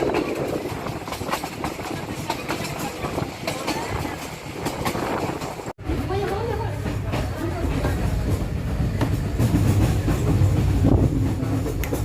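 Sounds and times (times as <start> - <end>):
wheels clicking over track: 0.0 - 8.4
train rumbling on rails: 0.0 - 12.0.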